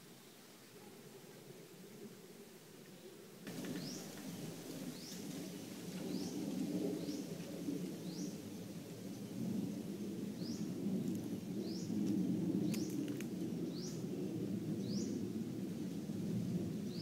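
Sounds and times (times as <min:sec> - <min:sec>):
steady low rumble: 0:03.5 - 0:17.0.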